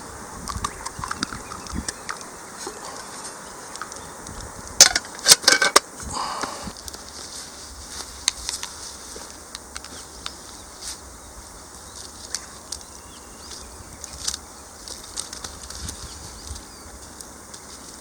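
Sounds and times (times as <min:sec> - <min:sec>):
wood fire crackling and popping: 0:06.7 - 0:18.0.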